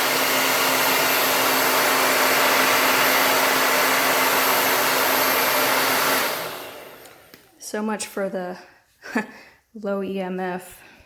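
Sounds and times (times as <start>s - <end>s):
hair dryer blowing and humming: 0.0s - 7.6s.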